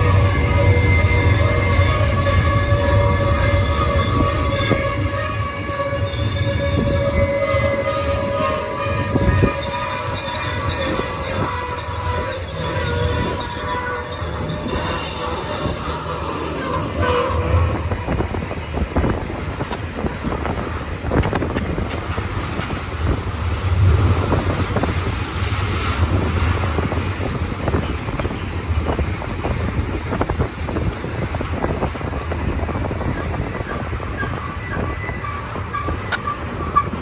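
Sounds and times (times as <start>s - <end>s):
thin wheel squeal: 0.0s - 18.1s
freight train rumbling past: 0.0s - 37.0s.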